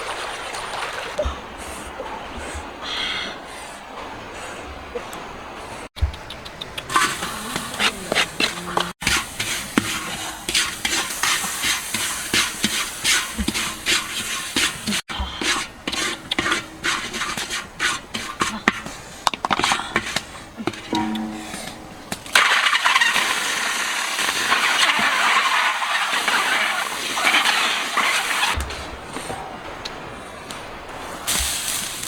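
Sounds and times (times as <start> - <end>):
scratchy scraping strokes: 6.9 - 18.9, 24.2 - 28.6.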